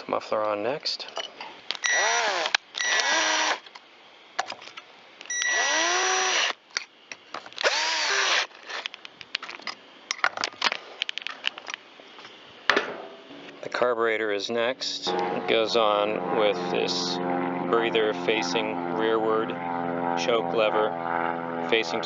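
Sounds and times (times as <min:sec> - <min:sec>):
cordless power driver whining: 0:01.8 - 0:03.7, 0:05.3 - 0:06.6, 0:07.6 - 0:08.9.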